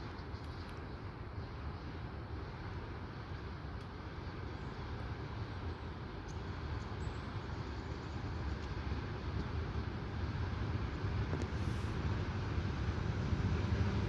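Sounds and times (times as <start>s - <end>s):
train rumbling: 6.7s - 14.0s.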